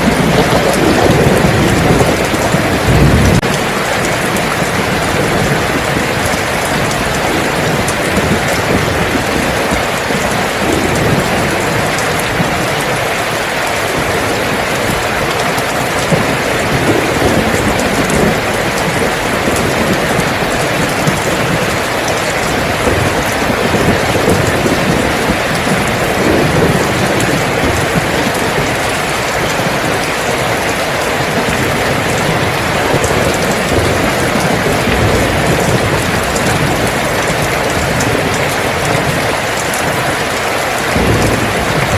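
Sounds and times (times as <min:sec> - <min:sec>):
heavy rain: 0:00.0 - 0:41.9.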